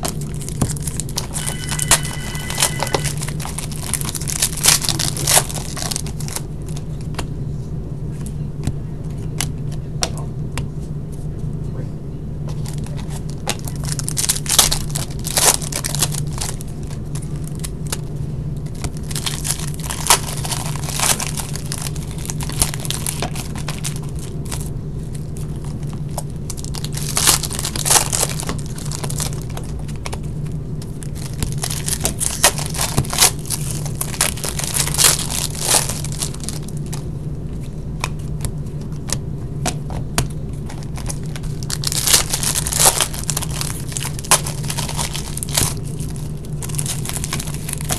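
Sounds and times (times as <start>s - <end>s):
steady low hum: 0.0s - 47.9s
card pack wrappers tearing and crinkling: 0.1s - 6.8s, 12.6s - 18.1s, 18.7s - 30.3s, 30.9s - 37.1s, 40.6s - 47.9s.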